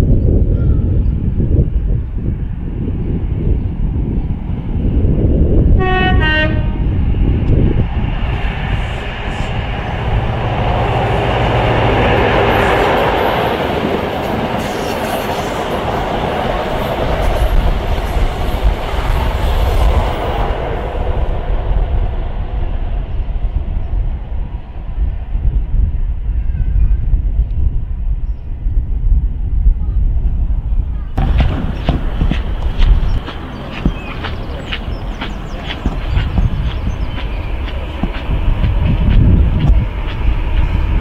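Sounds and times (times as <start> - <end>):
train passing: 1.3 - 27.2, 30.6 - 41.0
two-tone train horn: 5.8 - 7.0.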